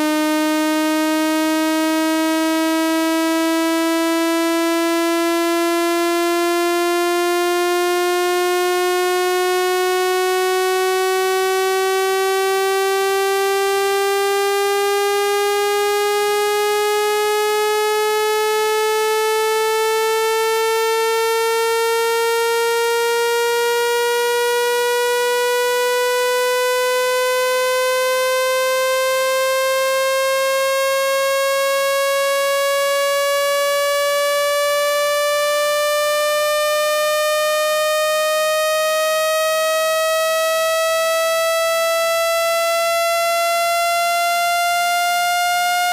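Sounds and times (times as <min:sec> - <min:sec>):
buzzy synthesized rising tone: 0:21.6 - 0:45.2.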